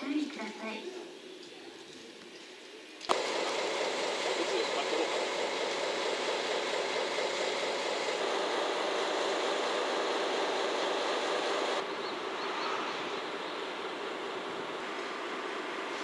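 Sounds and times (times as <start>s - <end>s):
train wheels on rail: 3.1s - 11.9s.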